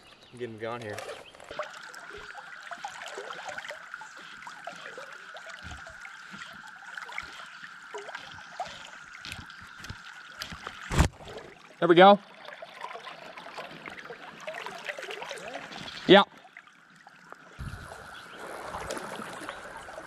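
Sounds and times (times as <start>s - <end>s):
river water trickling: 0.0s - 20.0s
cicadas droning: 1.0s - 10.9s, 14.1s - 20.0s.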